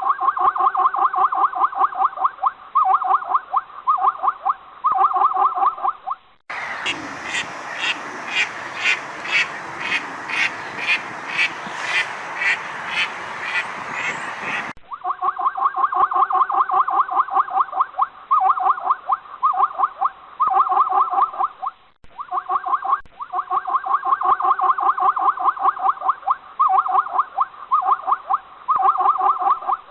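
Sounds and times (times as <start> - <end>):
rapid pulsed animal calls: 0.0 - 29.9
repeating animal call: 0.0 - 29.9
noisy background: 6.5 - 14.7.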